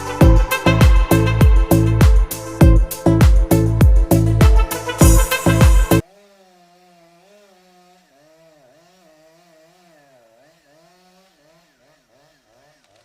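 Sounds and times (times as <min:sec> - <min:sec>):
loud music with heavy beat: 0:00.0 - 0:06.0.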